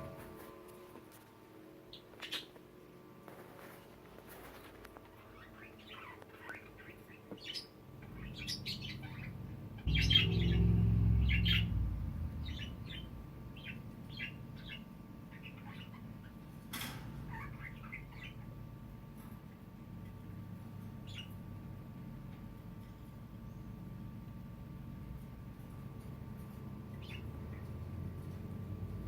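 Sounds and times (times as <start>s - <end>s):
budgies chirping: 5.2s - 16.4s, 17.3s - 18.6s
low rumble: 9.8s - 14.8s.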